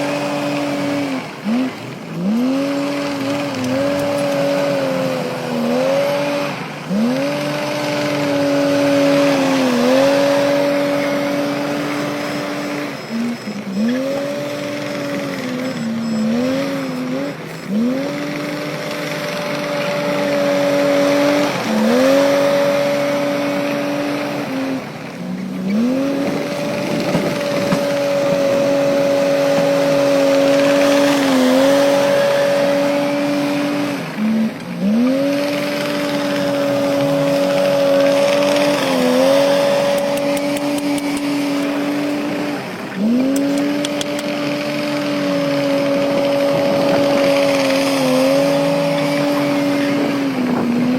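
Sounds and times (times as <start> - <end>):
diesel engine working hard: 0.0 - 50.9
high machine whine: 7.6 - 34.8.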